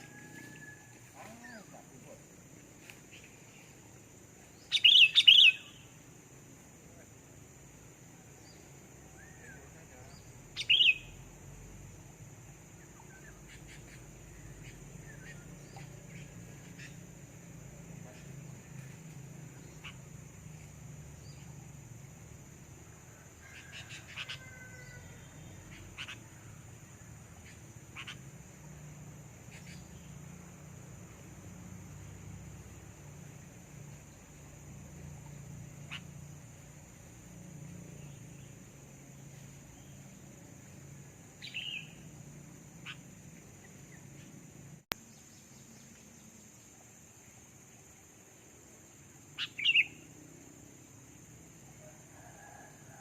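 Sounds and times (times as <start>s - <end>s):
steady high hiss: 0.0s - 53.0s
bird chirping: 4.5s - 6.0s, 8.4s - 11.4s, 12.6s - 21.8s, 23.5s - 28.4s, 29.4s - 30.4s, 33.9s - 37.2s, 41.2s - 46.8s, 49.3s - 50.1s.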